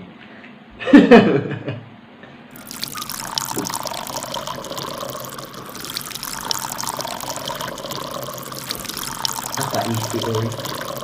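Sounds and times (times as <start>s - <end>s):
water pouring and splashing: 2.6s - 11.0s.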